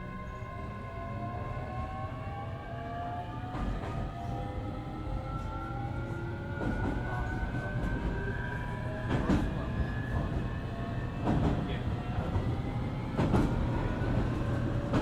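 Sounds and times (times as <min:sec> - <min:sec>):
train running rumble: 0:09.1 - 0:15.0.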